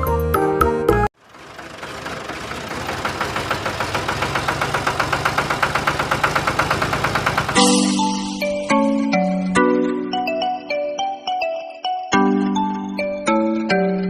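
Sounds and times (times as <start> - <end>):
engine knocking beat: 1.2 - 8.1.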